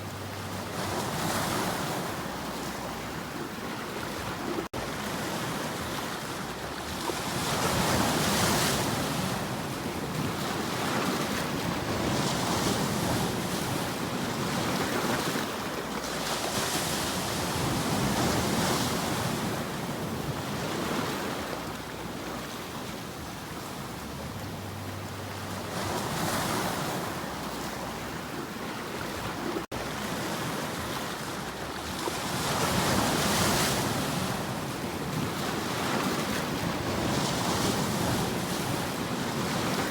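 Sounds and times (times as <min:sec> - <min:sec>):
ocean waves washing ashore: 0:00.0 - 0:39.9.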